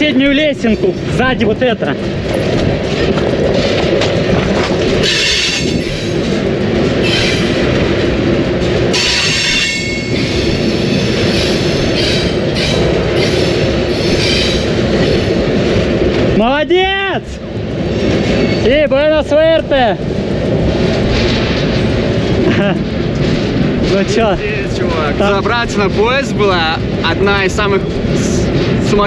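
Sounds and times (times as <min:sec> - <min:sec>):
train wheels rumbling: 0:00.0 - 0:29.0
high wheel squeal: 0:05.0 - 0:06.1, 0:08.9 - 0:15.3.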